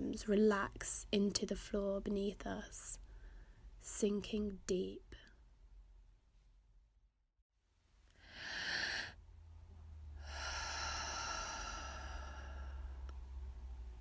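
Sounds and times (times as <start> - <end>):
person breathing: 3.1 - 3.8, 8.1 - 9.2, 10.1 - 13.4.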